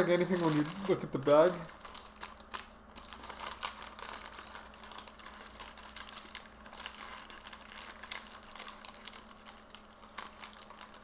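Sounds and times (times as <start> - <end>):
paper bag crinkling: 0.0 - 11.0.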